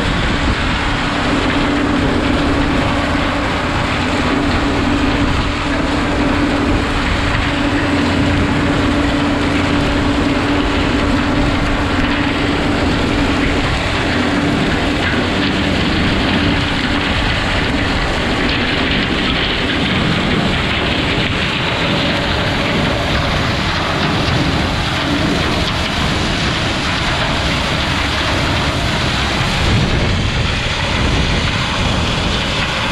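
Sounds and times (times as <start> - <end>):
low engine hum: 0.0 - 32.9
stalk chopper mechanical din: 0.0 - 32.9.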